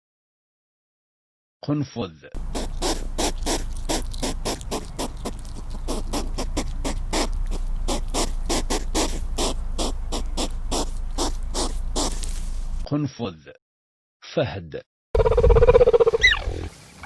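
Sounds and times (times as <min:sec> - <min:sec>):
hedgehog snuffling: 0:02.4 - 0:12.9.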